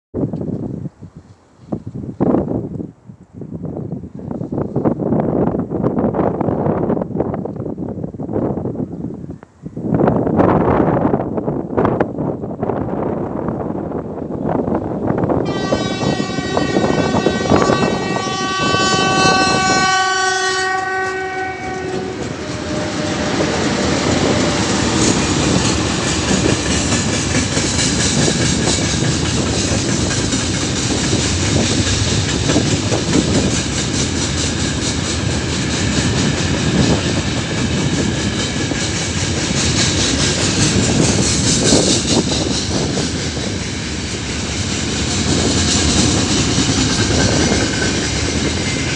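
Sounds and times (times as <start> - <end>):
locomotive horn blast: 15.4 - 25.2
train wheels clattering over joints: 22.1 - 48.9.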